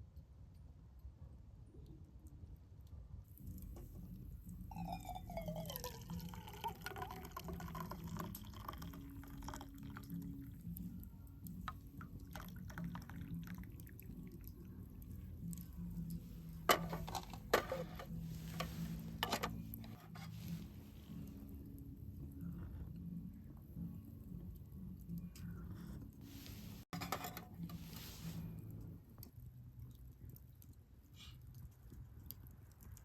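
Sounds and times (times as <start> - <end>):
liquid pouring into container: 4.6 - 10.5, 11.9 - 15.6
small drips and ticks: 5.5 - 16.3, 28.6 - 33.0.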